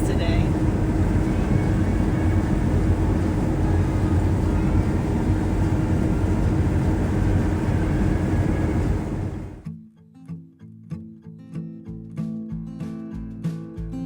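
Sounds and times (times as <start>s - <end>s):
heavy diesel engine running: 0.0s - 9.7s.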